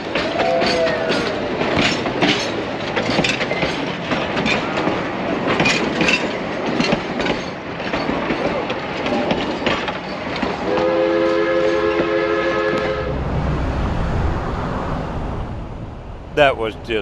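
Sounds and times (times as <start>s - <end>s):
train wheels clacking on rails: 0.0s - 12.2s
train rumble: 0.0s - 17.0s.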